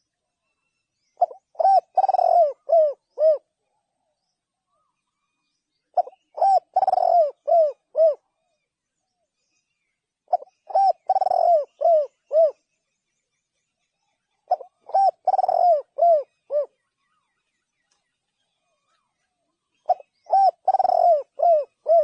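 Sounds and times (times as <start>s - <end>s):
dove cooing: 1.2s - 3.5s, 6.0s - 8.3s, 10.3s - 12.6s, 14.5s - 16.8s, 19.8s - 22.0s.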